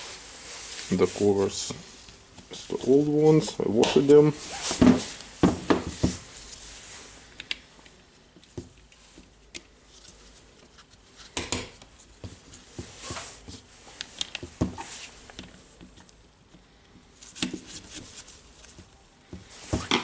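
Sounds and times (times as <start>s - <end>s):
short rustle: 0.0s - 5.4s.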